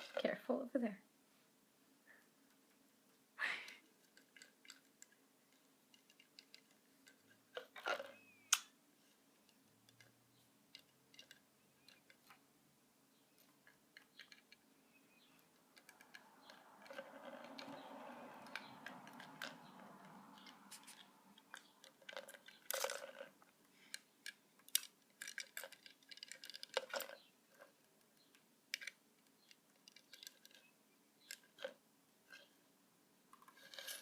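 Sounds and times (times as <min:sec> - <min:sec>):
bird beak clicking and tapping: 0:15.2 - 0:23.1.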